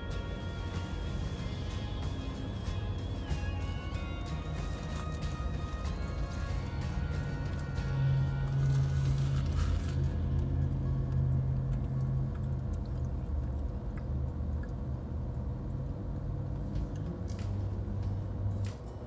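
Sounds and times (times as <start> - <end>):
steady low hum: 0.0 - 19.0
person chewing crunchy snack: 3.6 - 14.1.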